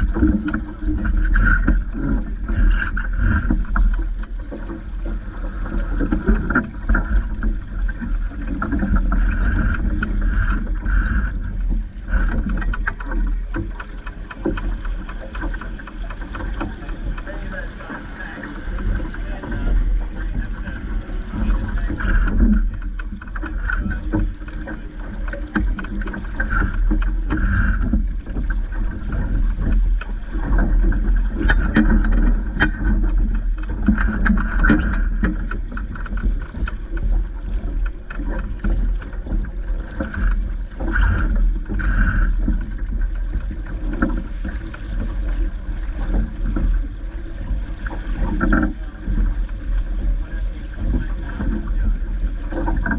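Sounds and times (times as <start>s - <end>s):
water splashing around boat: 0.0s - 52.9s
wind buffeting microphone: 0.0s - 52.9s.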